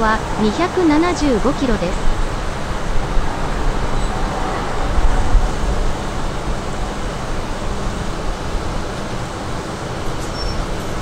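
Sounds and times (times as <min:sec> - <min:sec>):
train wash rumbling hiss: 0:00.0 - 0:11.0.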